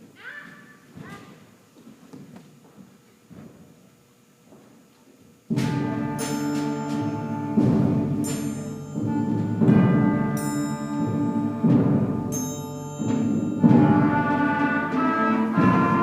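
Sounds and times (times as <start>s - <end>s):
concert band playing chords: 5.5s - 16.0s
percussion hits: 5.5s - 16.0s.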